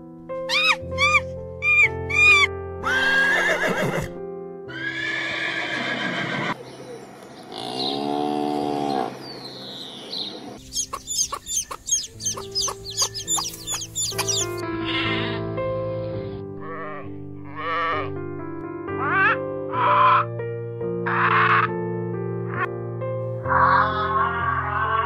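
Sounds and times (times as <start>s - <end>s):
background music: 0.0s - 6.6s, 10.4s - 25.0s
cow mooing: 7.5s - 9.2s, 16.6s - 18.2s
chicken clucking: 10.8s - 14.6s.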